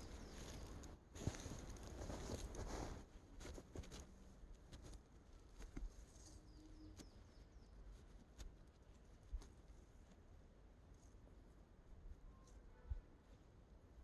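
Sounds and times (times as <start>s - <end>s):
faint bird chirps: 0.0s - 0.9s, 6.1s - 8.0s, 12.2s - 13.1s.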